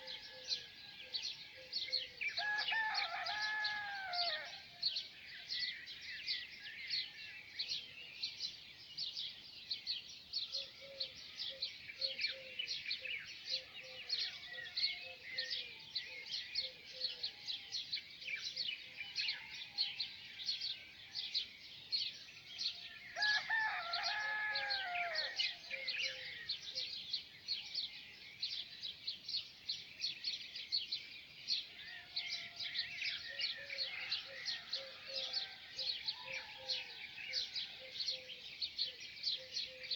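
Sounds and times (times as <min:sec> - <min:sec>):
small birds chirping: 0:00.0 - 0:39.9
rooster crowing: 0:02.4 - 0:04.6, 0:23.2 - 0:25.5.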